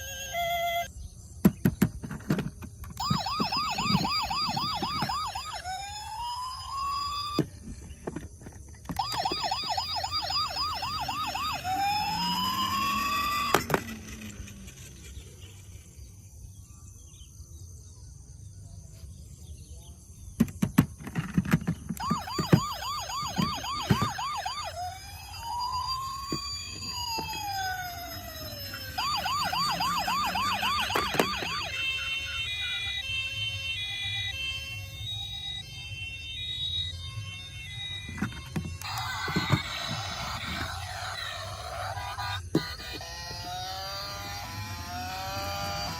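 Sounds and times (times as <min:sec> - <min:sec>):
toy electronic sirens: 0:00.0 - 0:15.8, 0:20.2 - 0:45.9
repeating electronic beeping tune: 0:03.0 - 0:07.5, 0:09.0 - 0:13.7, 0:22.0 - 0:45.9
clicks: 0:28.7 - 0:32.0, 0:37.9 - 0:43.1.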